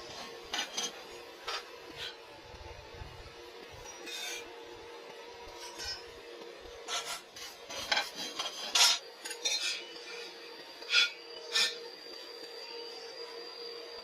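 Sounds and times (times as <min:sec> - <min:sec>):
steel tools clinking and scraping: 0:00.1 - 0:02.2, 0:03.9 - 0:04.4, 0:05.5 - 0:06.1, 0:06.8 - 0:10.2, 0:10.8 - 0:11.8.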